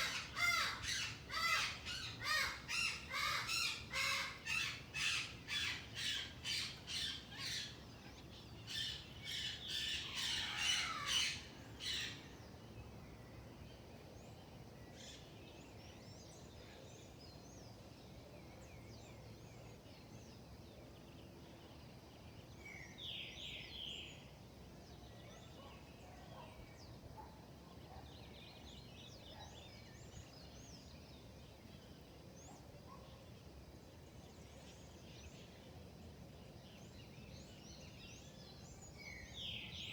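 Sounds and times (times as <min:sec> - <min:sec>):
birds squawking harshly: 0:00.0 - 0:07.6.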